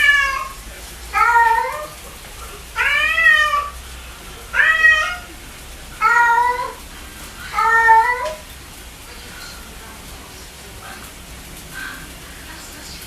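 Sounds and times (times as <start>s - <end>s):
cat meowing: 0.0s - 2.0s, 2.7s - 3.8s, 4.5s - 5.3s, 6.0s - 6.8s, 7.5s - 8.5s.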